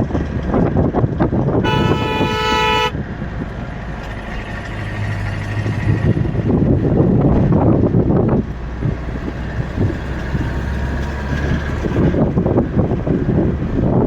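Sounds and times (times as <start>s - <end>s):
vehicle engine and road noise: 0.0s - 14.0s
vehicle horn honking: 1.6s - 3.0s.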